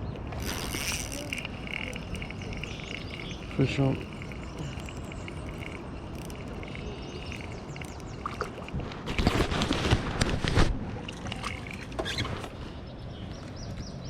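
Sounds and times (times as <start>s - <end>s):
insects chirping: 0.0s - 8.8s
birds chirping: 0.0s - 9.4s
water splashing: 0.2s - 12.5s.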